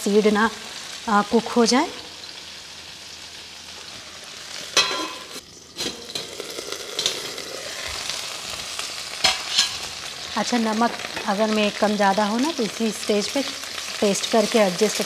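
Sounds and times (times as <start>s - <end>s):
vegetables sizzling in oil: 0.0s - 15.0s
metal lid clinking against pan: 4.8s - 6.3s.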